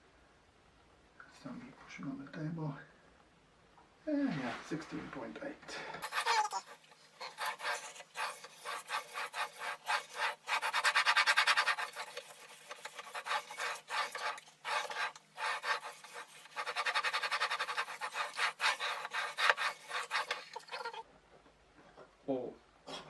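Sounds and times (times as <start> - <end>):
sharpening stone scraping knife: 6.0 - 21.0.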